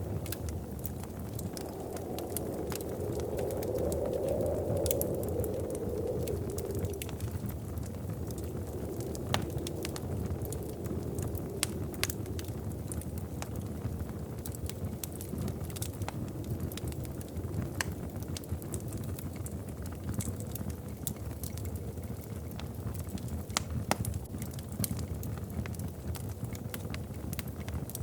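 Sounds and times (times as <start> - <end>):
low rumble: 0.0 - 18.1
wood fire crackling: 0.0 - 28.0.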